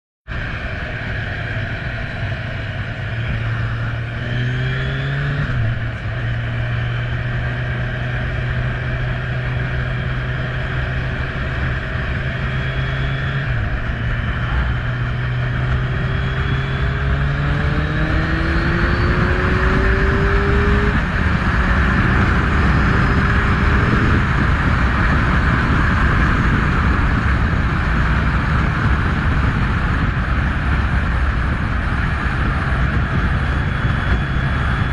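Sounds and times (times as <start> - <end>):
motorcycle engine revving: 0.3 - 34.9.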